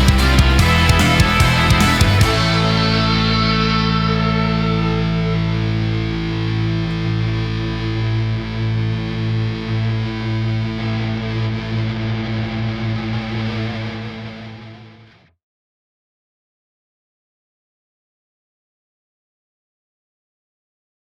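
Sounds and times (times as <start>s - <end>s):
pulsing low note: 0.0s - 12.1s
distorted electric guitar chord: 0.0s - 15.2s.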